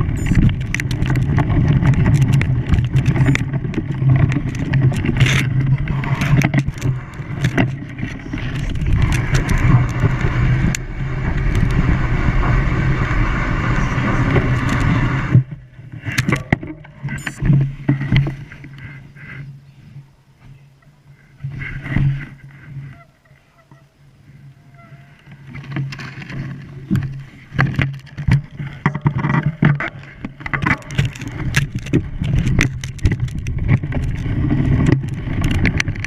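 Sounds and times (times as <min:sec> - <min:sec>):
engine running: 0:00.0 - 0:17.7
loud rushing noise: 0:09.0 - 0:15.5.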